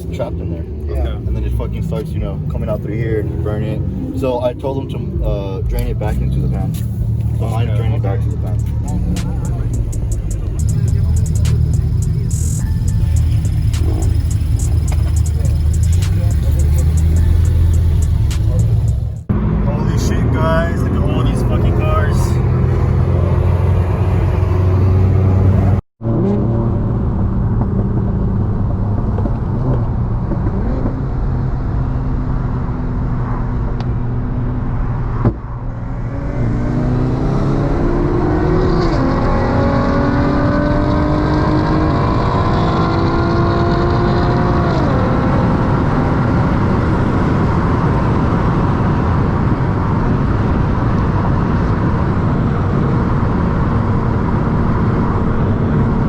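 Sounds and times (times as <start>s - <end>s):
car engine accelerating: 0.0s - 56.0s
whine: 7.6s - 23.1s.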